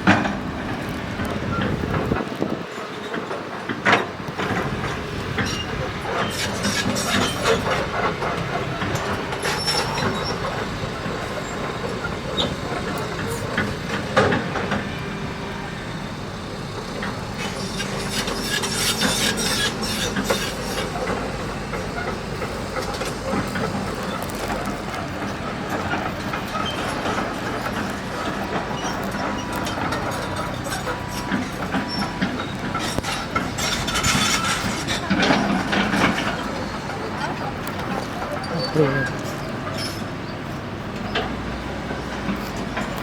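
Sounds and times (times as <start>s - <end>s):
steady mechanical noise: 0.0s - 43.0s
metal knocks and clatter: 17.4s - 40.1s.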